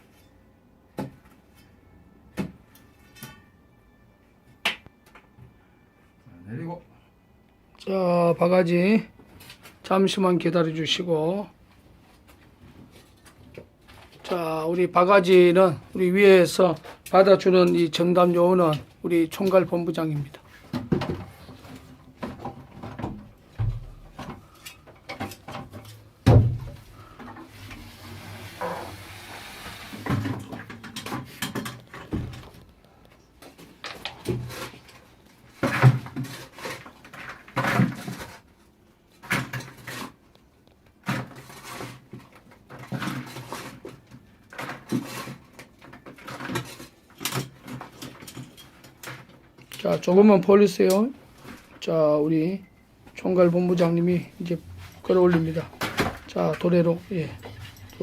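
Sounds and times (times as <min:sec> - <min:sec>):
bucket knocks and scrapes: 0:35.6 - 0:38.5.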